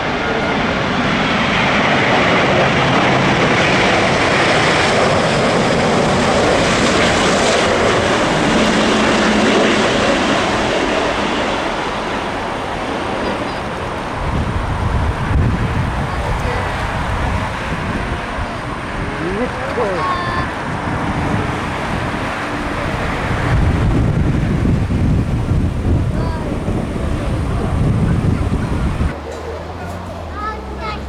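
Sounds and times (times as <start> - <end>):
jet airliner engines: 0.0 - 31.0.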